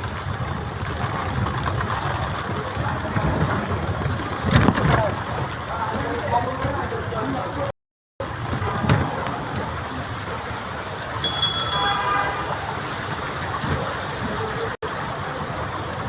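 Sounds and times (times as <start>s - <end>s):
rain: 0.0s - 11.2s, 12.3s - 16.0s
wet street traffic: 0.0s - 16.0s
vehicle horn honking: 11.9s - 12.7s.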